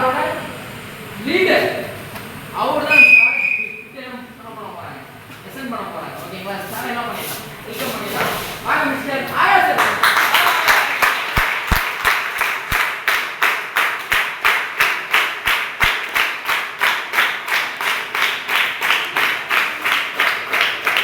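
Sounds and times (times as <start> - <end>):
group of people clapping: 9.6 - 21.0.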